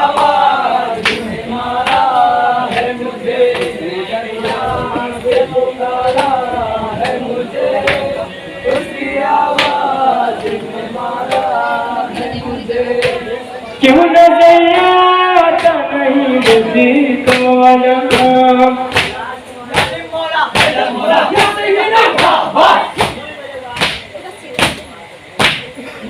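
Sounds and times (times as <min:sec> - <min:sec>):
men chanting in chorus: 0:00.0 - 0:23.4
chest-beating slaps: 0:01.0 - 0:02.1, 0:18.9 - 0:19.2, 0:20.6 - 0:21.6, 0:23.8 - 0:24.8, 0:25.4 - 0:25.7.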